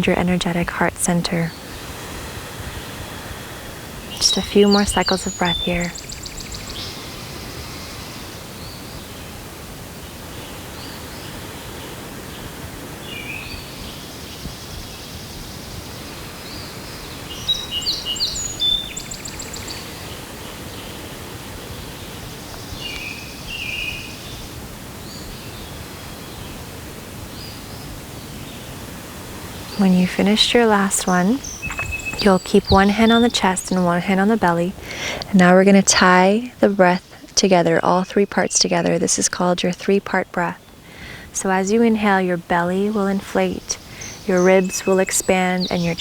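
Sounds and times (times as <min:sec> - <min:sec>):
faint outdoor hiss: 0:00.0 - 0:46.0
birds singing and chirping: 0:03.8 - 0:09.4, 0:13.0 - 0:24.4, 0:29.4 - 0:46.0.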